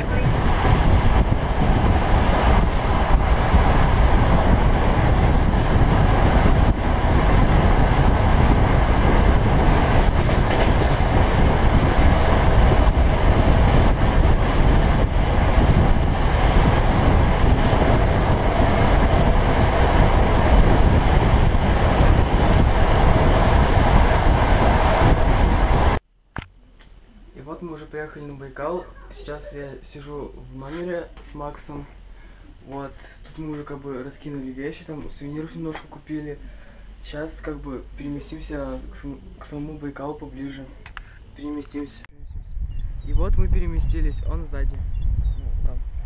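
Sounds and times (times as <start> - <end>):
train rushing past at speed: 0.0 - 26.0.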